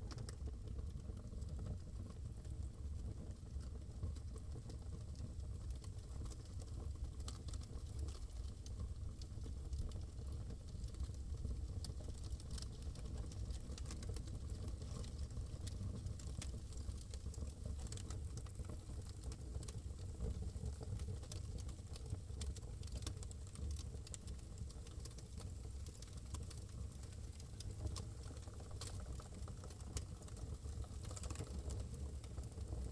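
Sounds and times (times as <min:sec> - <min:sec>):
wood fire crackling: 0:11.8 - 0:32.9.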